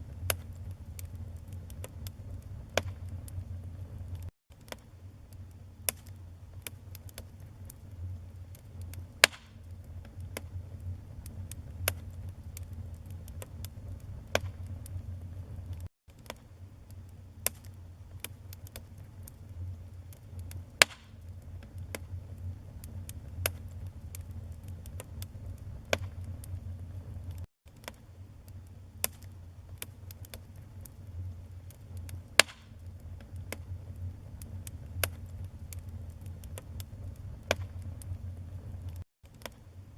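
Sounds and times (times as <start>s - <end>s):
wood fire crackling: 0.0s - 39.6s
low rumble of flames: 0.0s - 39.9s.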